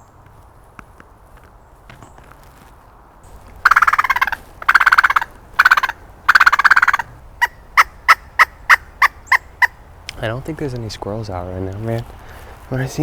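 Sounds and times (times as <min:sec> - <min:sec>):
animal rattling calls: 0:03.3 - 0:12.2
short sharp animal calls: 0:03.6 - 0:09.8.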